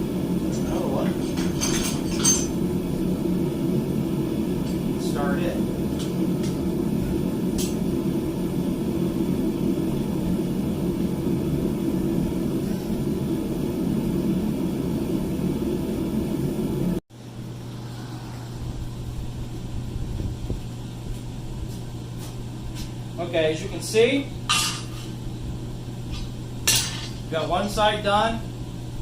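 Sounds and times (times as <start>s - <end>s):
low hum: 0.0s - 29.0s
forge rushing drone: 2.2s - 20.8s.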